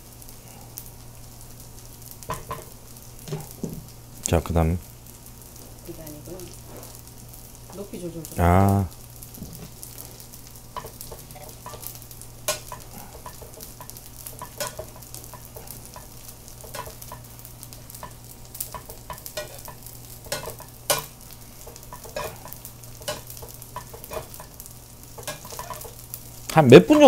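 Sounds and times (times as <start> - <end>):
steady low hum: 0.0 - 26.8
fish sizzling in oil: 0.0 - 27.0
spatula tapping a pan: 2.3 - 2.7, 10.8 - 17.3, 17.9 - 26.0.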